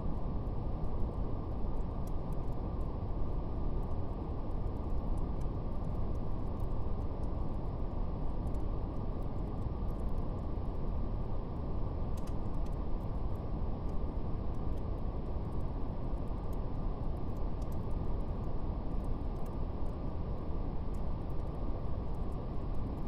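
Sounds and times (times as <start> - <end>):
faint fire crackles: 0.0 - 23.0.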